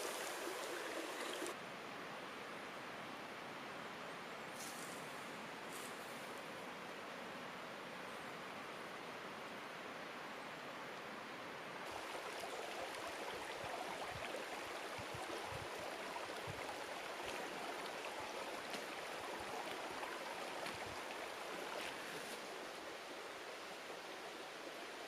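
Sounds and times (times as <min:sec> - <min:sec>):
stream babbling: 0:00.0 - 0:01.6, 0:11.8 - 0:25.0.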